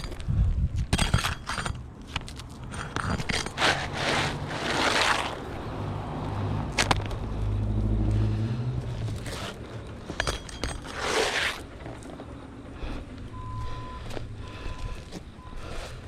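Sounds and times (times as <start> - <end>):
low steady hum: 0.0 - 16.0
roof shingles scraping and rustling: 2.8 - 5.6, 9.1 - 9.7, 10.6 - 12.3.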